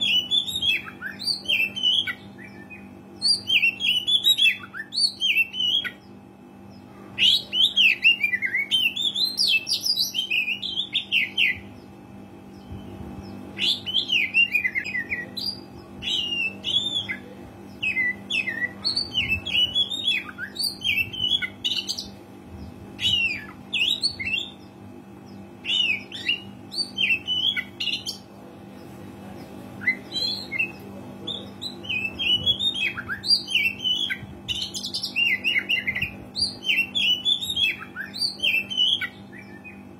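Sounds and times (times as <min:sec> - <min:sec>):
bird whistling song: 0:00.0 - 0:06.0, 0:12.5 - 0:22.0, 0:23.0 - 0:24.6, 0:25.6 - 0:28.2, 0:29.8 - 0:39.9
steady low hum: 0:00.0 - 0:39.9.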